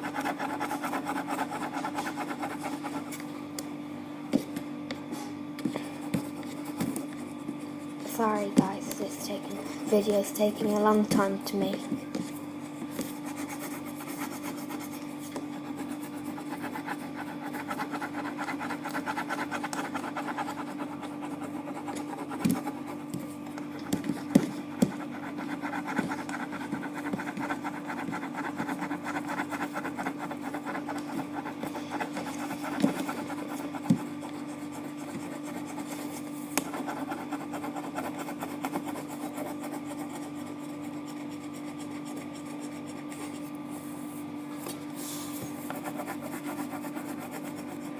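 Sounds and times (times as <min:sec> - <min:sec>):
colouring strokes on paper: 0:00.0 - 0:03.2, 0:12.3 - 0:44.2, 0:45.0 - 0:47.9.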